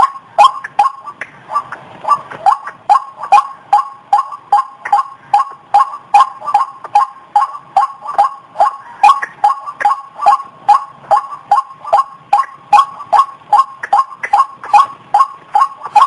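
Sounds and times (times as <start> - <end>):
waterhen calling: 0.0 - 16.0.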